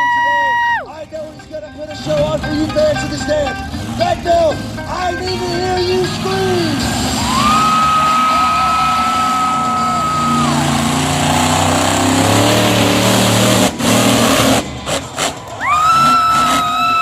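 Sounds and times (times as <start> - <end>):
crowd cheering: 0.0 - 0.9, 6.9 - 13.4, 14.0 - 17.0
low engine rumble: 0.0 - 17.0.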